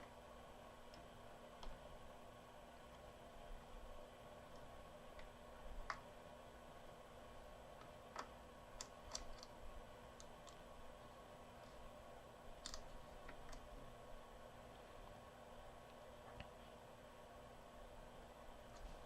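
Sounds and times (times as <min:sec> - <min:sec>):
small clicks and taps: 0:04.5 - 0:06.1, 0:07.8 - 0:09.6, 0:10.2 - 0:10.6, 0:12.6 - 0:13.7.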